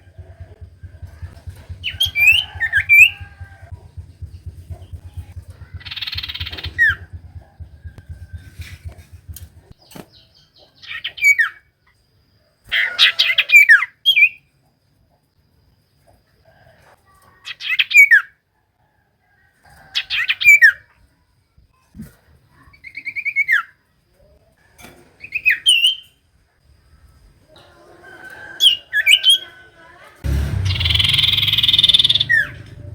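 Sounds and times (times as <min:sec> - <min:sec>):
bird chattering and whistling: 0:00.0 - 0:09.7, 0:30.7 - 0:32.7.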